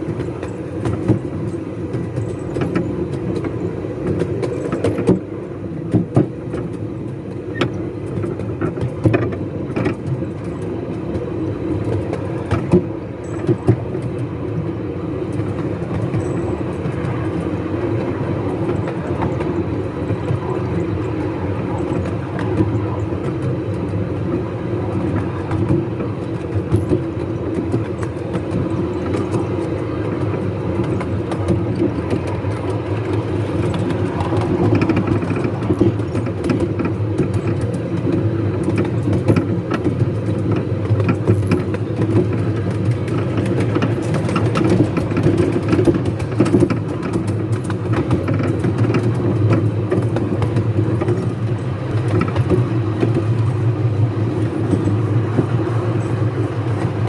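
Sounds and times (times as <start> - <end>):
wheels rumbling on rail: 0.0 - 57.0
sharp clicks and knocks: 24.9 - 53.7.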